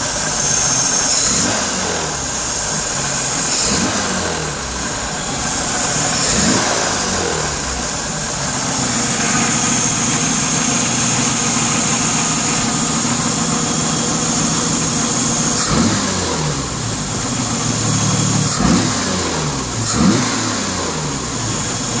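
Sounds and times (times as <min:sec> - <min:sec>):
engine idling and revving: 0:00.0 - 0:22.0.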